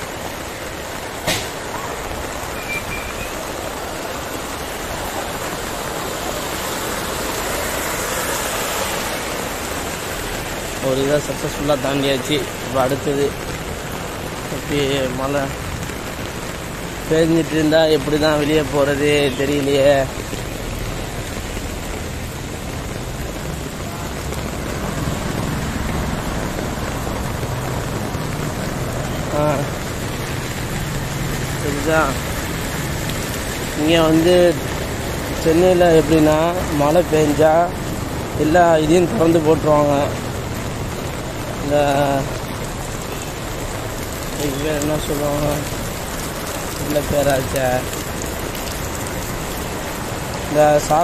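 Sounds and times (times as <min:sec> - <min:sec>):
heavy rain: 0:00.0 - 0:51.0
rushing floodwater: 0:00.0 - 0:51.0.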